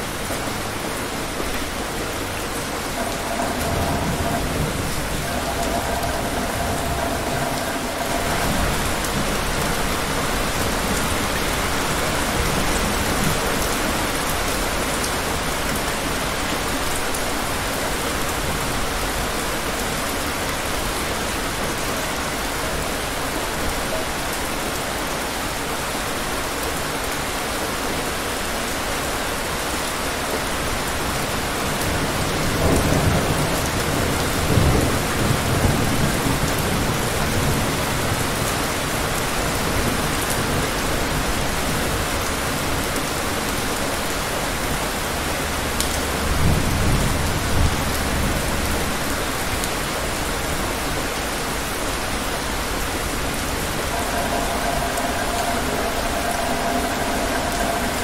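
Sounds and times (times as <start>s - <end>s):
heavy rain on palm trees: 0.0s - 58.0s
low thunder rumbles: 2.0s - 13.9s, 52.5s - 58.0s.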